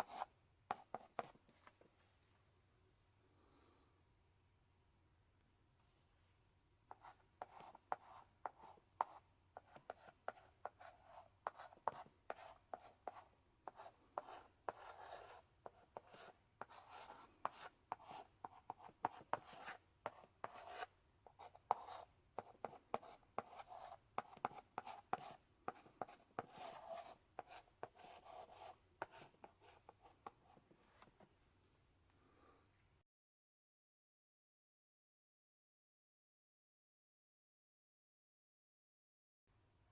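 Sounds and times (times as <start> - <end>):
chalk writing on blackboard: 0.0 - 1.4, 6.9 - 31.1.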